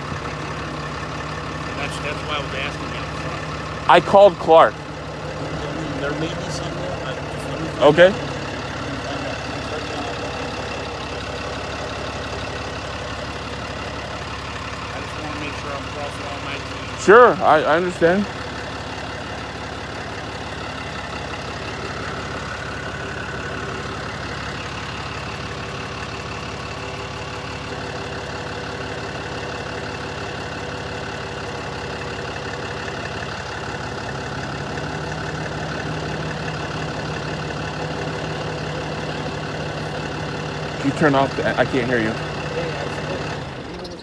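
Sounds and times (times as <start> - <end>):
vehicle engine idling: 0.0 - 44.0.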